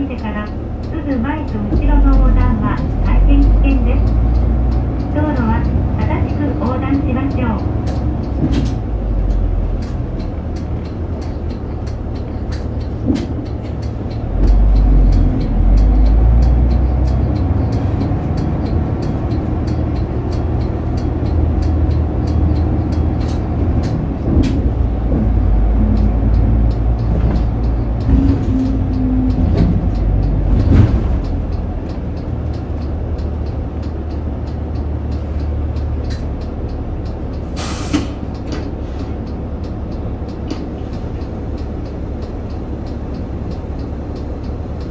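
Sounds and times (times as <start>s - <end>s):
bus diesel engine rumble: 0.0s - 44.9s
cabin rattles and ticks: 0.0s - 44.9s
air brakes hissing: 37.4s - 39.2s.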